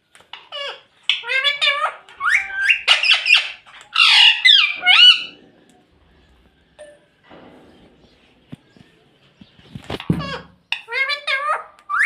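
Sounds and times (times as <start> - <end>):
parrot squawking: 0.3 - 5.4, 10.1 - 12.0.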